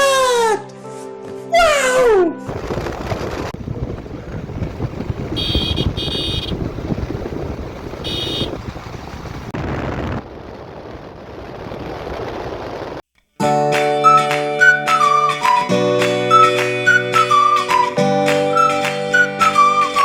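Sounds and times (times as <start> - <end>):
music: 0.0 - 2.5, 13.4 - 20.0
motorcycle engine rumbling: 2.5 - 13.0
wind noise: 2.5 - 13.0
horn beeping: 5.3 - 6.6, 8.0 - 8.6.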